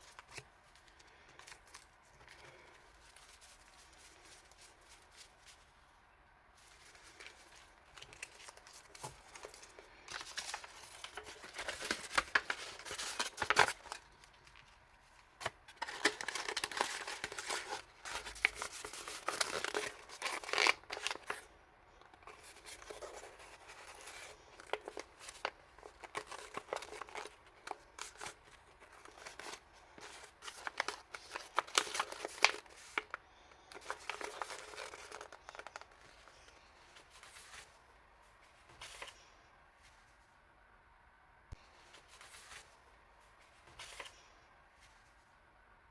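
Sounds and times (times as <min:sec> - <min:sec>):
packaging crinkling and tearing: 0:06.8 - 0:14.8, 0:15.4 - 0:21.5, 0:22.2 - 0:36.4.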